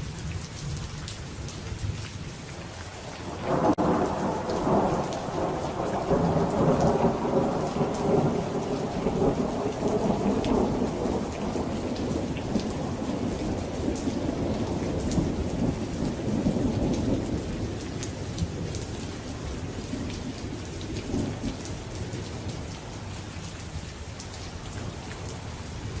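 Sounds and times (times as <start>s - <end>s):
steady rain: 0.0s - 26.0s
rolling thunder: 3.4s - 21.7s.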